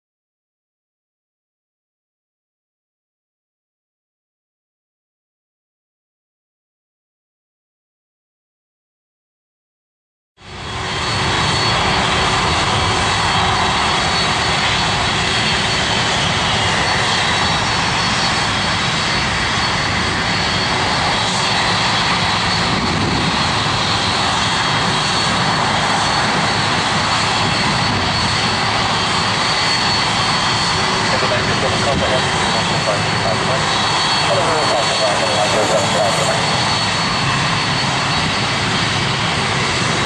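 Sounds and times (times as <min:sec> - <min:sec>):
jet engines running: 0:10.4 - 0:40.0.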